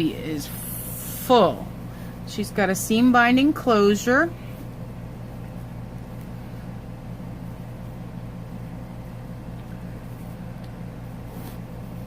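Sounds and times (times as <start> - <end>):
low electrical hum: 0.0 - 12.0
faint rustle: 8.9 - 12.0.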